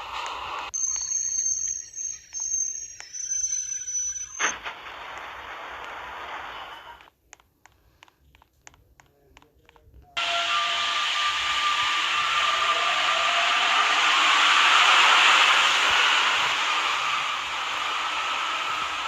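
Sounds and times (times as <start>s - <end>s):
train rushing hiss: 0.0s - 0.7s, 10.2s - 19.0s
train motor whine rising: 0.0s - 7.1s, 10.2s - 19.0s.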